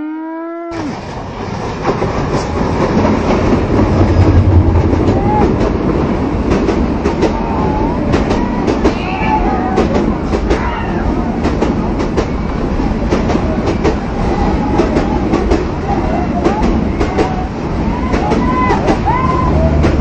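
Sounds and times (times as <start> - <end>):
train wheels clattering over rail joints: 0.8 - 7.5.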